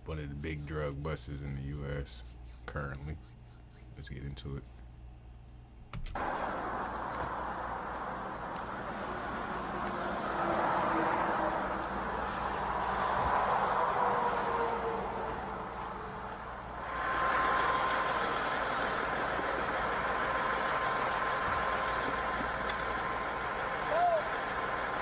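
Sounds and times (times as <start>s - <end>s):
steady whine: 6.1s - 25.0s
tyre noise on road: 6.2s - 25.0s
vehicle engine: 6.2s - 25.0s.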